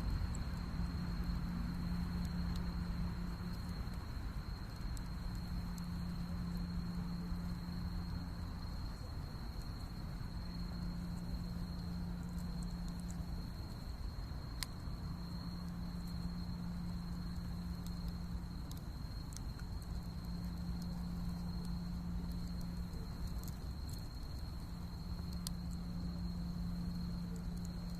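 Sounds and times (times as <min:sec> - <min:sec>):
faint crackles: 0:00.0 - 0:27.9.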